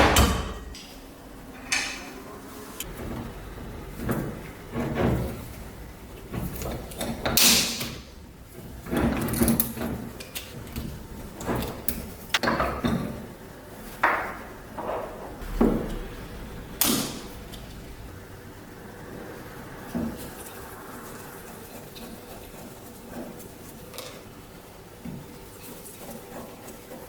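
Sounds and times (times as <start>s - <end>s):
metal knocks and clanks: 0.0s - 13.4s, 14.0s - 18.3s.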